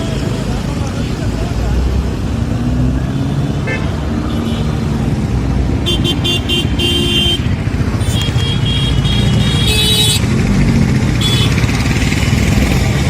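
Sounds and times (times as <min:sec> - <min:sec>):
traffic engine rumble: 0:00.0 - 0:13.0
car horn honks: 0:03.6 - 0:04.7, 0:05.8 - 0:10.3, 0:11.2 - 0:11.7.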